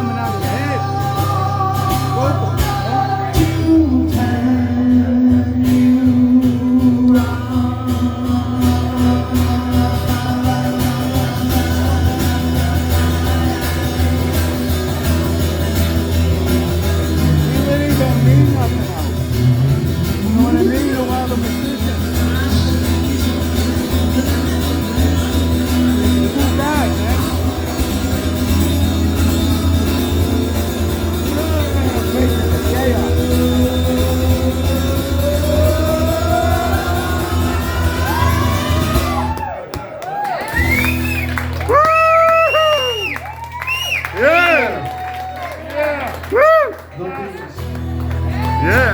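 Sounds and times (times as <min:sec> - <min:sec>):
lead guitar: 0:00.0 - 0:39.3, 0:47.4 - 0:48.9
rock band instrumental: 0:13.0 - 0:33.6.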